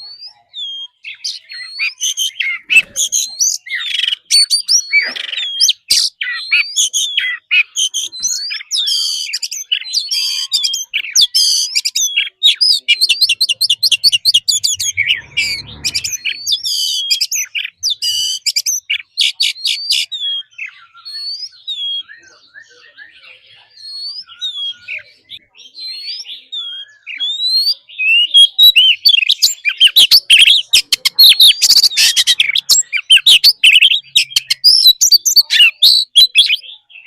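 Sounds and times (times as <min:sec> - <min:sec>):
bird singing whistles and trills: 0:00.0 - 0:37.0
brief low rumble: 0:14.3 - 0:16.4.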